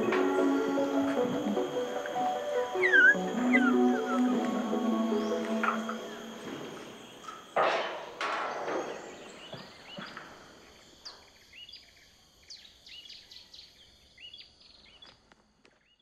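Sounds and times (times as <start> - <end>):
small birds chirping: 0.0 - 7.6.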